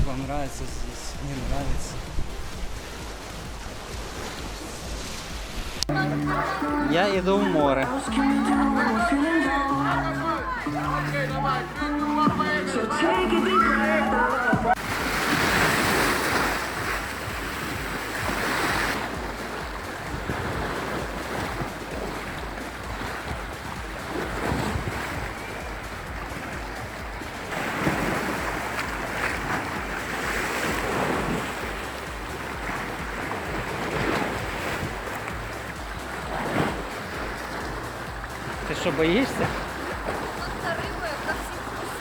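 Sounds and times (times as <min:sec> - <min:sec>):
wind buffeting microphone: 0:00.0 - 0:05.9
sea waves washing in: 0:00.0 - 0:42.0.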